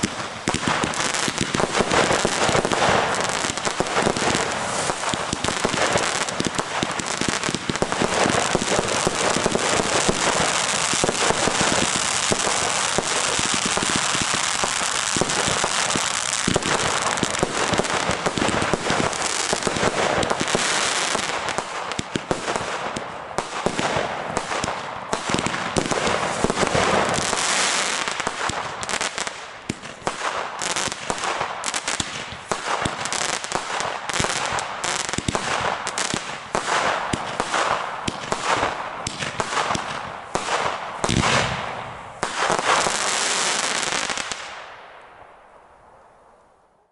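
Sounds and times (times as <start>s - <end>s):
fireworks crackling and banging: 0.0s - 45.1s.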